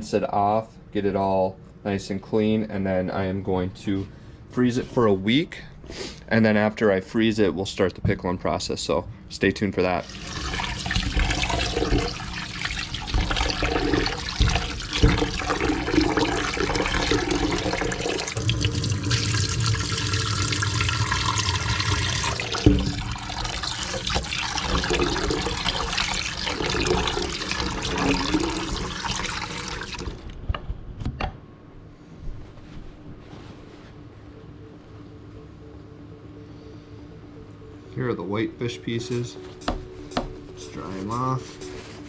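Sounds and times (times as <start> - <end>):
tap water splashing: 10.4 - 19.6, 22.2 - 26.1, 39.1 - 41.8.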